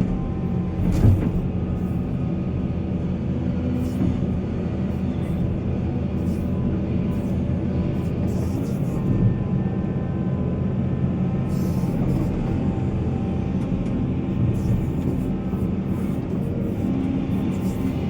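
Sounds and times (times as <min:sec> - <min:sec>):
machinery clunk: 0:00.0 - 0:01.6
heavy diesel machinery running: 0:00.0 - 0:18.0.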